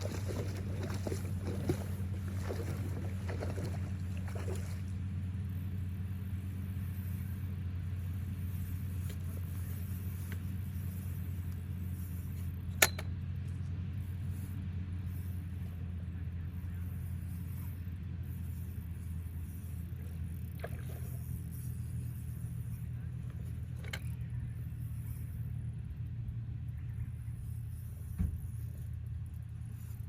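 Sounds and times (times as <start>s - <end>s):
steady low rumble: 0.0s - 12.8s, 13.4s - 30.0s
sharp click: 12.8s - 13.1s.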